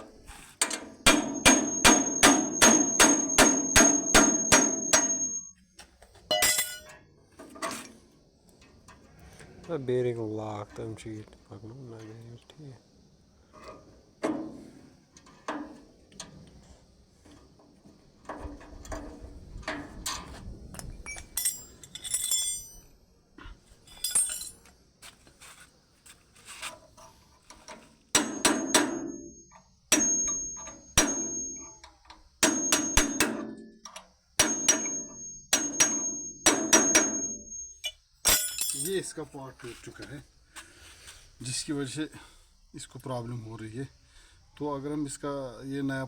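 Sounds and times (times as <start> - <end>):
hammer striking metal: 1.0 - 5.5, 6.3 - 6.9, 28.2 - 31.8, 32.4 - 33.7, 34.4 - 38.9.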